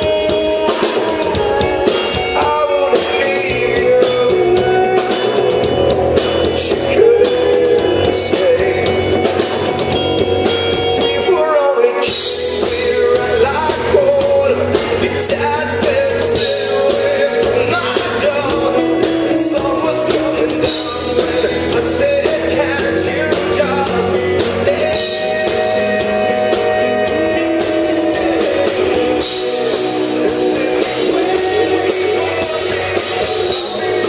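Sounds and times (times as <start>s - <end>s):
live rock band playing: 0.0s - 34.0s.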